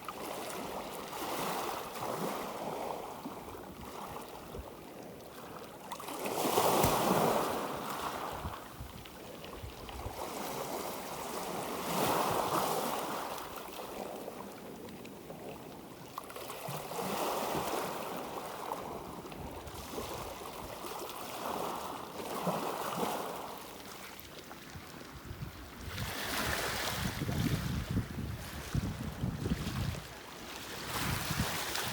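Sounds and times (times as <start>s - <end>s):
gentle sea waves washing in: 0.0s - 31.9s.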